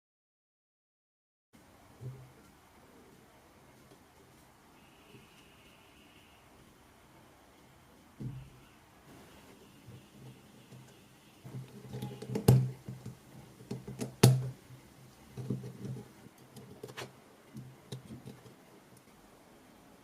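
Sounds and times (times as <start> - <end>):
hard objects clicking and knocking: 10.2 - 14.6, 15.2 - 18.6.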